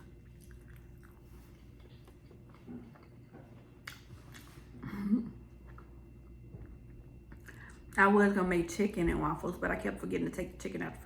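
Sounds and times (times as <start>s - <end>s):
food crunching: 0.0s - 4.7s
person chewing food: 0.0s - 4.8s.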